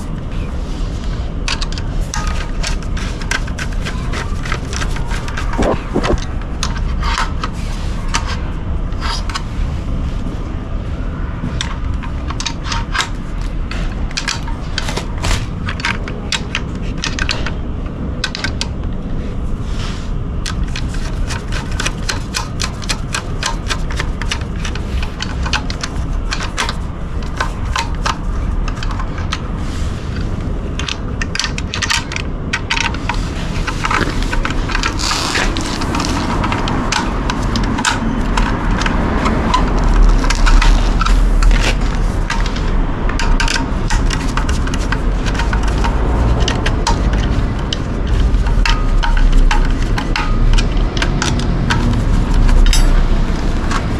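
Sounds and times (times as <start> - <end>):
steady low rumble: 0.0 - 53.9
hand tools clinking: 33.6 - 53.9.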